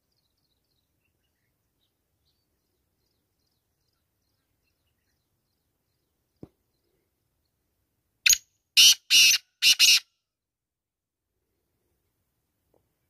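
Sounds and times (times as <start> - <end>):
distant small birds chirping: 0.0 - 10.0.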